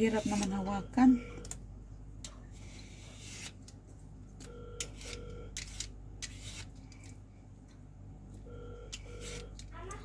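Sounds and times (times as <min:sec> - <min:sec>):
knife scraping fruit skin: 0:02.5 - 0:03.8, 0:04.9 - 0:07.1.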